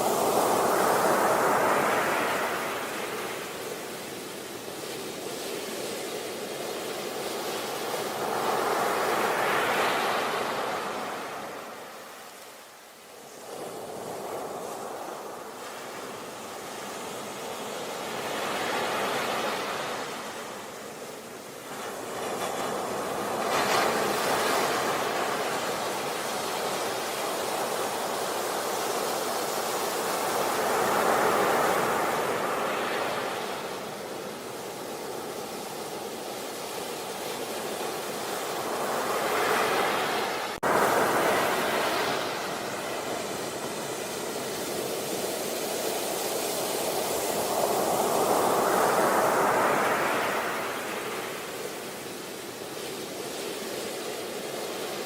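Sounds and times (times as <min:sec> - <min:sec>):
sea waves breaking on beach: 0:00.0 - 0:55.0.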